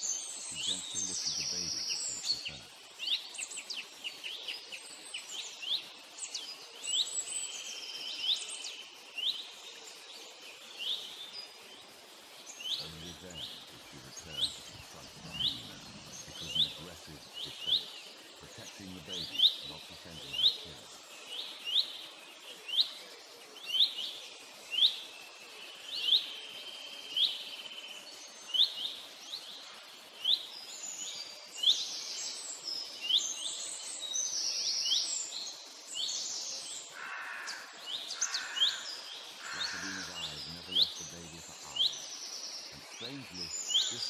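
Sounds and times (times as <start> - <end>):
low bird call: 0.0 - 2.7, 12.7 - 20.9, 37.0 - 42.0, 42.7 - 44.0
higher bird chirping: 0.0 - 9.6, 10.7 - 23.0, 23.6 - 44.0
rising bird chirp: 36.0 - 44.0.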